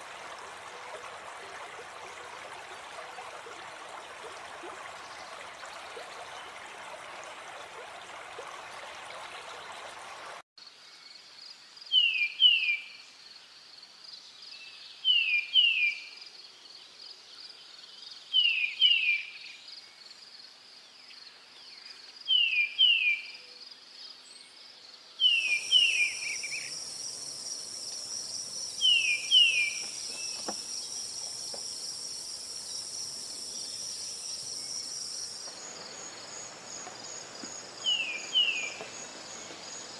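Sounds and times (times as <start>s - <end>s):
rush like flowing water: 0.0s - 10.5s, 25.2s - 39.9s
high insect trill: 25.5s - 39.9s.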